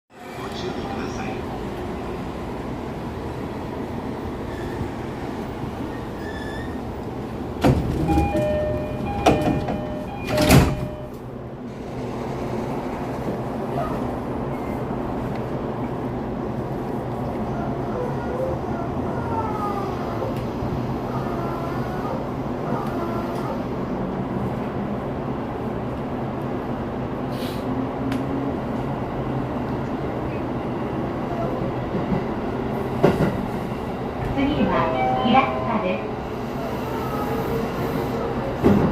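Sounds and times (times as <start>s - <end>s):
train humming: 0.3s - 38.9s
sliding doors clunking shut: 7.2s - 11.1s, 38.6s - 38.9s
door chime tones: 8.0s - 11.2s, 34.7s - 36.2s.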